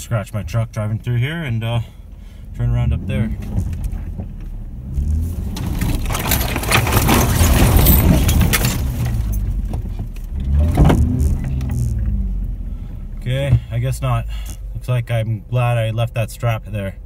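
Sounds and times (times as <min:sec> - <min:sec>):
truck engine revving: 0:02.6 - 0:09.6, 0:10.2 - 0:14.6
tires spinning and brush scraping: 0:02.6 - 0:14.6.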